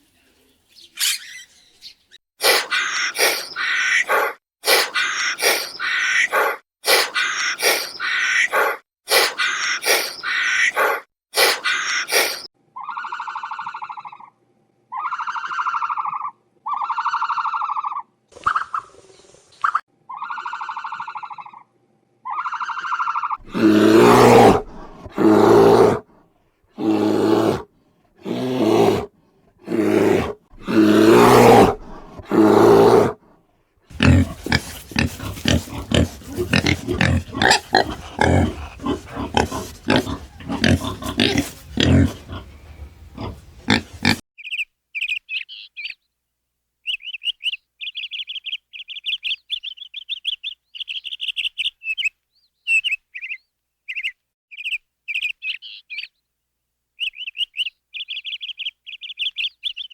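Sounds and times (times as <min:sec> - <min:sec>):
farm animal calls: 0:01.0 - 0:18.8, 0:20.1 - 0:26.0, 0:33.9 - 0:44.2
rapid grunting: 0:02.4 - 0:12.5, 0:23.4 - 0:26.0, 0:26.8 - 0:33.2, 0:33.9 - 0:44.2.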